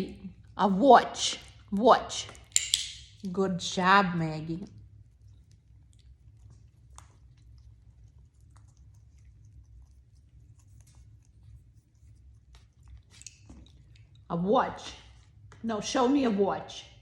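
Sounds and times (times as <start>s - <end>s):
parrot beak clicking and crunching: 1.4s - 3.2s, 4.8s - 14.3s.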